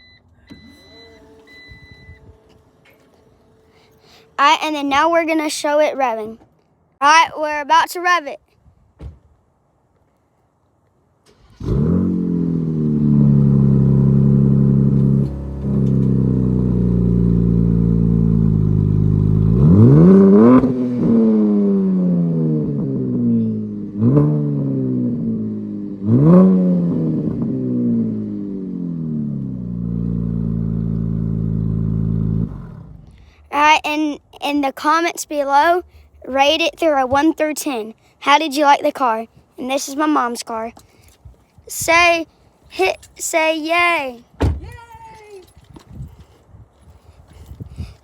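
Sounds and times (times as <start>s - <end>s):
car engine idling and revving: 11.3s - 33.5s.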